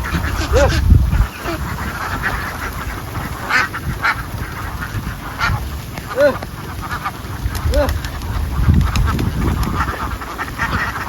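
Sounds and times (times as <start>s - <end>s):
ducks quacking: 0.0s - 11.0s.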